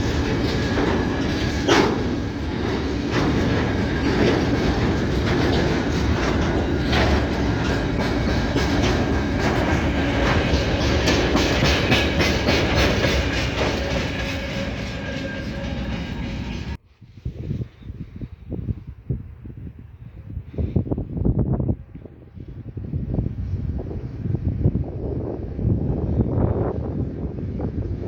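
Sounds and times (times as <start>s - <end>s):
wheels clicking over rail joints: 0.0s - 16.6s.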